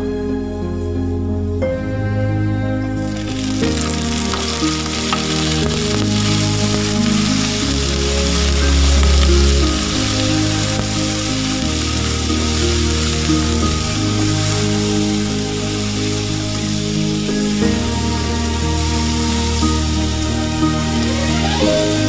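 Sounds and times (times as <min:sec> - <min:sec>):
background music: 0:00.0 - 0:22.0
shrimp sizzling in hot oil: 0:03.0 - 0:22.0.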